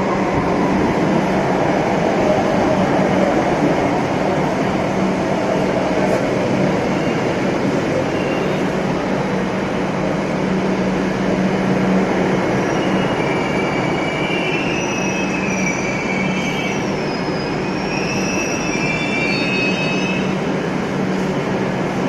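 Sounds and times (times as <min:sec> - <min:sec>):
train rumbling on rails: 0:00.0 - 0:22.0
wheels squealing against rail: 0:08.0 - 0:08.7, 0:12.5 - 0:20.4.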